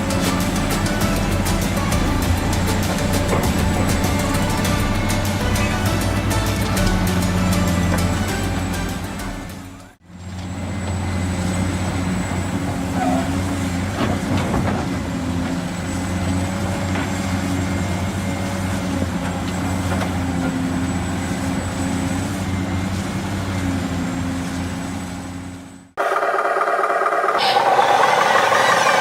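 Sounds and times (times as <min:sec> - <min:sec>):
toy vehicle motor humming: 0:26.0 - 0:29.0.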